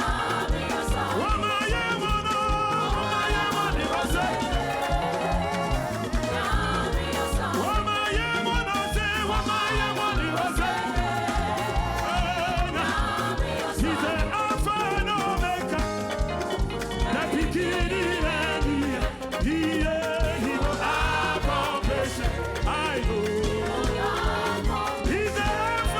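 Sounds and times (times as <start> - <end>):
people singing: 0.0 - 25.9
quick drum beat: 0.0 - 25.9
upbeat gospel praise music: 0.0 - 25.9.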